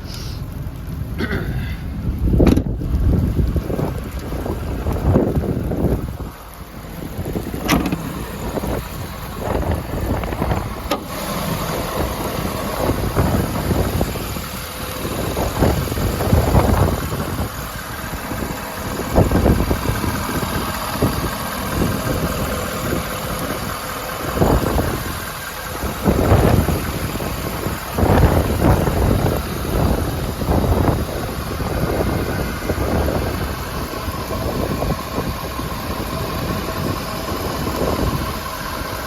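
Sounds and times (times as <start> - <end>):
diesel engine idling: 0.0 - 39.0
wind buffeting microphone: 0.4 - 39.0.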